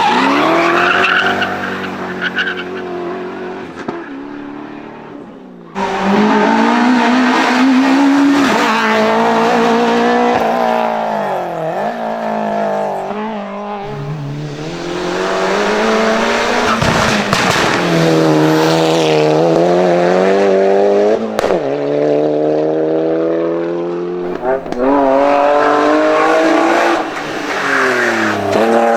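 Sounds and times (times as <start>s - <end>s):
race car engine revving: 0.0s - 28.9s
engine pops: 16.2s - 18.0s.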